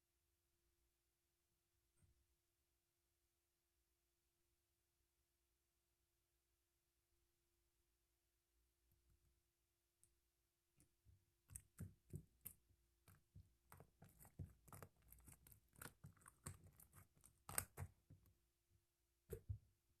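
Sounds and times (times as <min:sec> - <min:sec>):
slime squishing with wet clicks: 0:10.8 - 0:18.1.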